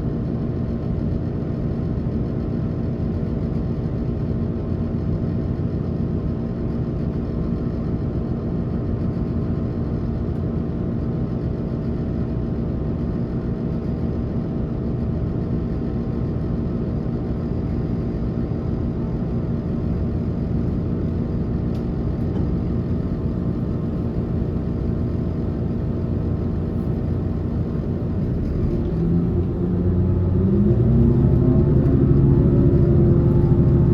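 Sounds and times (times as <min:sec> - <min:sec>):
drive hum: 0:23.2 - 0:33.9
train wheels rumbling on track: 0:24.4 - 0:33.9.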